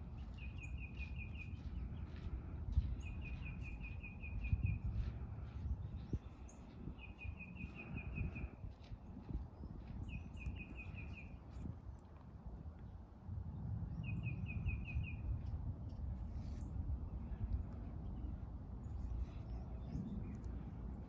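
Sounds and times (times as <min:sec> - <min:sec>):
low outdoor rumble: 0:07.6 - 0:21.0.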